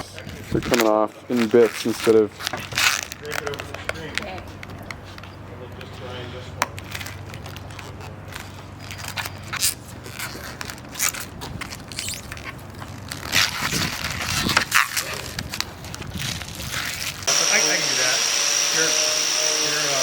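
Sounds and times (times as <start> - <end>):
material peeling off metal panel: 7.4 - 17.3.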